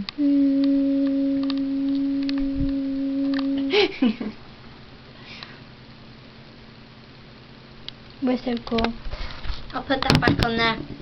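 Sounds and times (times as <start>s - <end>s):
short falling vocal sound: 0.0s - 3.8s
person humming: 0.0s - 4.3s.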